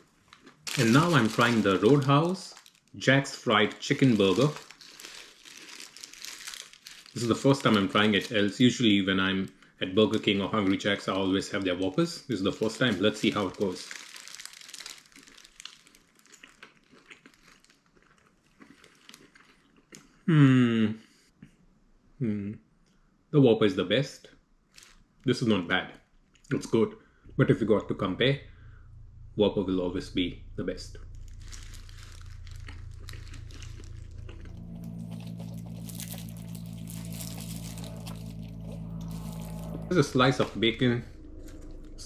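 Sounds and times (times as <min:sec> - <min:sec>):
steady low hum: 0:00.0 - 0:05.2, 0:27.1 - 0:42.0
paper wrapper crinkling: 0:00.0 - 0:19.6, 0:24.7 - 0:25.0, 0:31.0 - 0:40.0.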